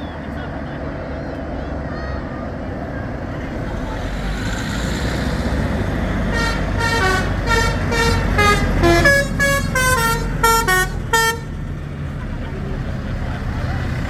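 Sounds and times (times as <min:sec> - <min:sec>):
low engine rumble: 0:00.0 - 0:14.0
musical vehicle horn playing a tune: 0:06.2 - 0:11.7.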